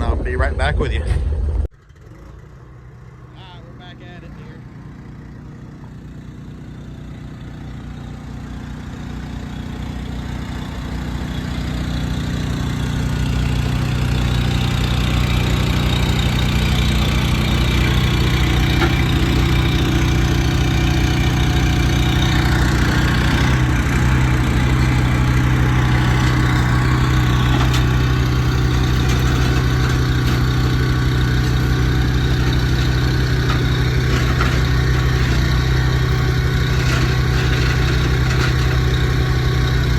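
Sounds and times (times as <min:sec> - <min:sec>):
truck engine idling: 0:02.6 - 0:39.9.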